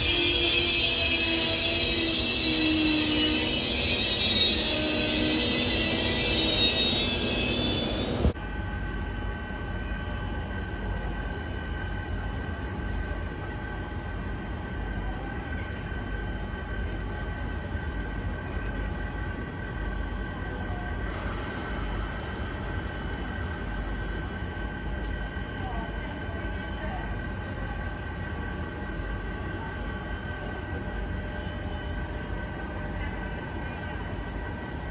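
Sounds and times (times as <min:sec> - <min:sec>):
faint high whine: 0:00.0 - 0:08.4
steady train hum: 0:00.0 - 0:34.9
train passing close by: 0:00.0 - 0:34.9.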